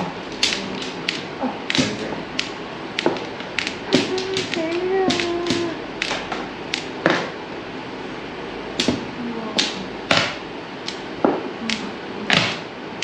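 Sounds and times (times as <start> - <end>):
mahjong tiles clacking: 0.0 - 7.4, 8.8 - 12.6.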